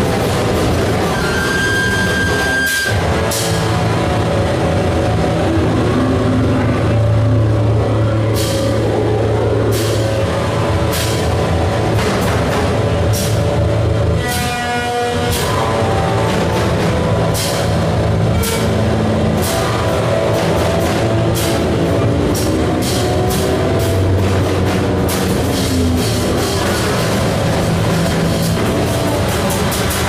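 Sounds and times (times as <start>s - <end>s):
distorted noise music: 0.0s - 30.0s.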